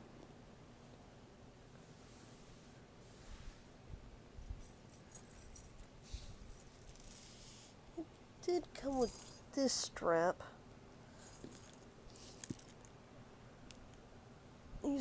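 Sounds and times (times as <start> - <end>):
metal chain strap clinking: 4.4 - 7.6, 8.8 - 9.6, 11.2 - 12.9.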